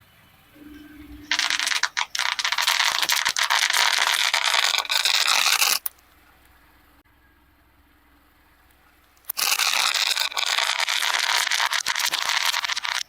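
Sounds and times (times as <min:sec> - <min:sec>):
dense crackling scrape: 0:00.6 - 0:06.0, 0:09.2 - 0:13.0.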